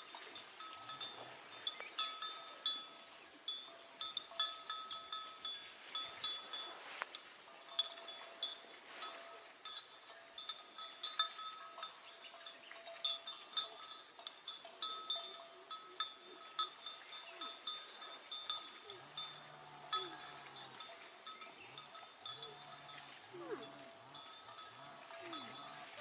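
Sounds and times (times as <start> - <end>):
metal bell clinking: 7.7 - 26.0.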